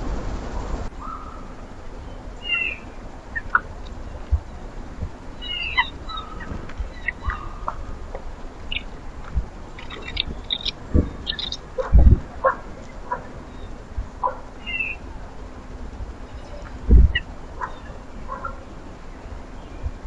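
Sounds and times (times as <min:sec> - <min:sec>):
birds chirping: 0:00.0 - 0:20.0
soft low thumps: 0:05.9 - 0:12.6, 0:16.8 - 0:17.2.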